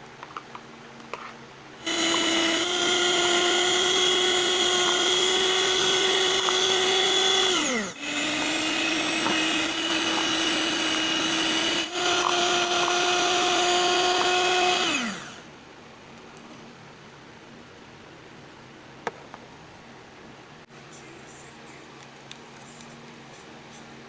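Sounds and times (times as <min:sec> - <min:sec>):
electric hand mixer whine: 0:01.8 - 0:15.5.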